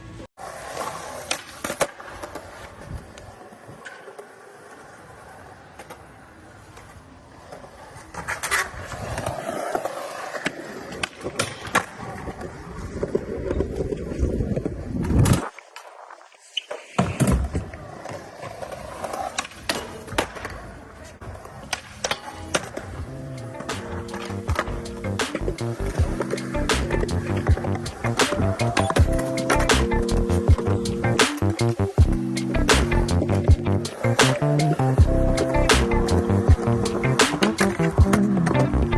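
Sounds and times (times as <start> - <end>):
skateboard wheels rolling on pavement: 0.0 - 38.9
skateboard clacks: 0.6 - 15.9, 16.6 - 38.9
skateboard pop: 21.4 - 30.4, 31.0 - 33.3, 33.9 - 35.0, 35.6 - 38.9.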